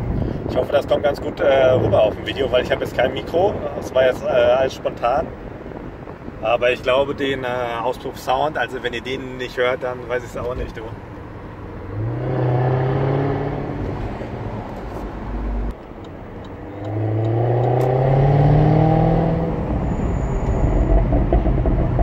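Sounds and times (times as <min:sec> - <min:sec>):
car engine revving: 0:10.9 - 0:22.0.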